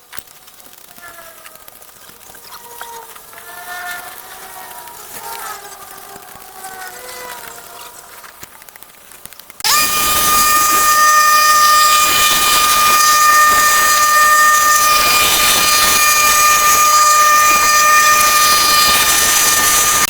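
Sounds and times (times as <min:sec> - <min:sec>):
machine running with high whine: 0:09.6 - 0:20.0.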